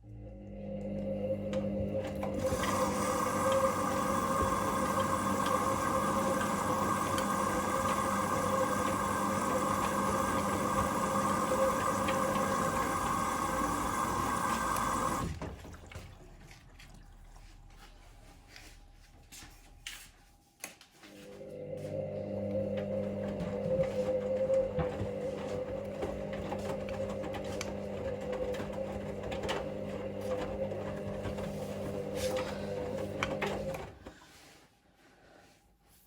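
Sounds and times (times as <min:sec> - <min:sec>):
washing machine motor humming: 0:00.0 - 0:19.1, 0:21.1 - 0:34.4
water sloshing in drum: 0:15.1 - 0:18.2.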